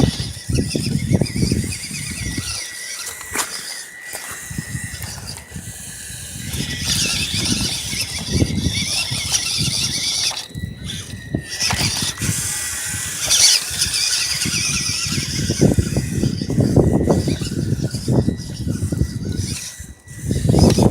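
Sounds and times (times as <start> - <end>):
rough crunching: 0.0 - 20.9
toy truck motor whining: 0.0 - 20.9.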